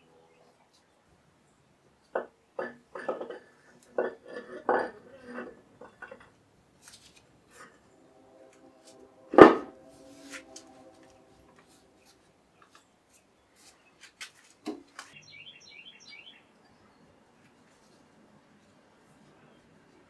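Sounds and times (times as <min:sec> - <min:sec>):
metallic clank ringing: 0:02.6 - 0:03.4, 0:04.0 - 0:06.2, 0:09.3 - 0:11.2.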